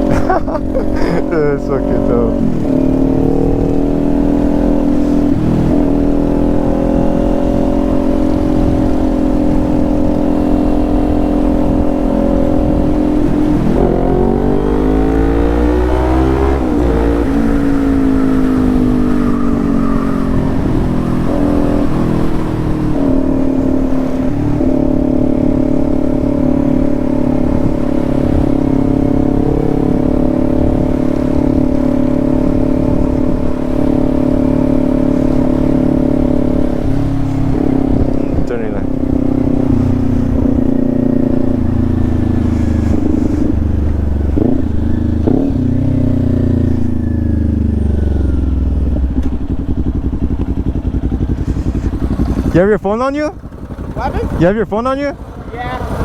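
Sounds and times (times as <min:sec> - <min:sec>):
low wind rumble: 0:00.0 - 0:56.0
motorcycle engine running: 0:00.0 - 0:56.0.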